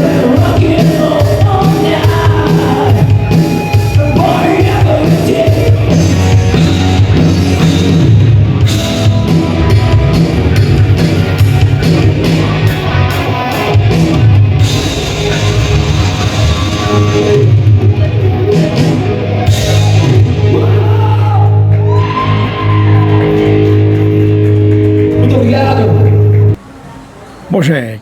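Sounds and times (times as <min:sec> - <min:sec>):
electric guitar: 0:00.0 - 0:26.6
live rock band playing: 0:00.0 - 0:26.6.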